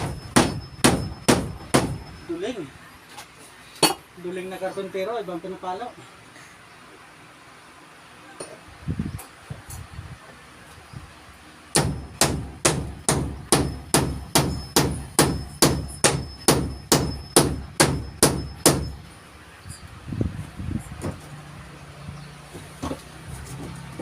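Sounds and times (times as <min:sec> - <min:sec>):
hammer driving nail into wood: 0:11.7 - 0:18.9.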